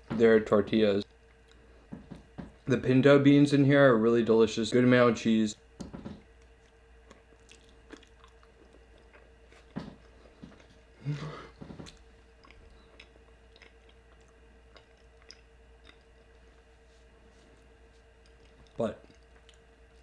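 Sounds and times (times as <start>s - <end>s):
wet chewing with mouth clicks: 6.3s - 10.8s, 11.7s - 16.8s, 17.9s - 20.0s.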